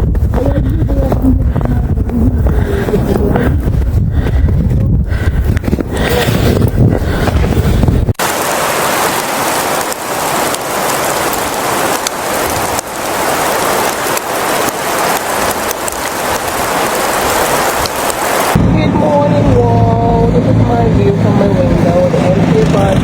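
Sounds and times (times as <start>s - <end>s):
wind rumble on microphone: 0.0s - 23.0s
steady hiss of falling rain: 8.2s - 18.6s
light ticks of sleet: 9.1s - 18.5s.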